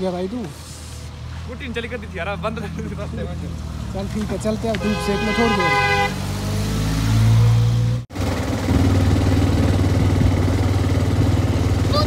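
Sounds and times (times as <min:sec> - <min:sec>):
motorcycle engine revving: 0:03.7 - 0:12.0.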